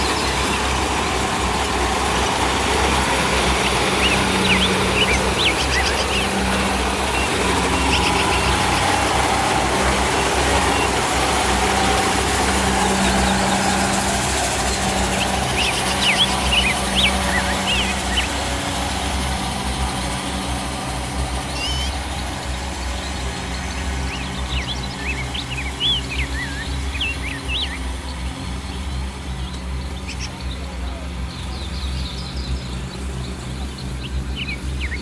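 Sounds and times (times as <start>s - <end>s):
combine harvester diesel engine: 0.0s - 35.0s
bird chirps: 3.6s - 9.2s, 14.8s - 18.4s, 21.5s - 22.0s, 23.7s - 28.2s.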